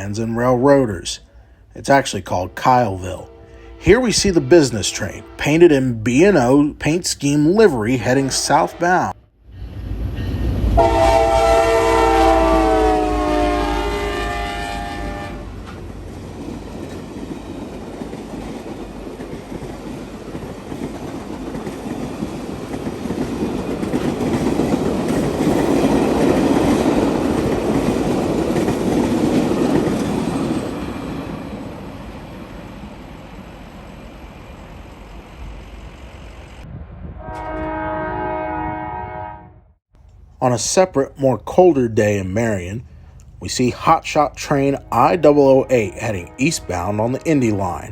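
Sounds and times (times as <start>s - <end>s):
train rumbling and clattering on rails: 0.0s - 0.9s, 9.4s - 38.4s
locomotive horn chord: 2.2s - 6.6s, 7.5s - 9.2s, 10.7s - 15.6s, 37.2s - 39.7s, 44.4s - 47.8s.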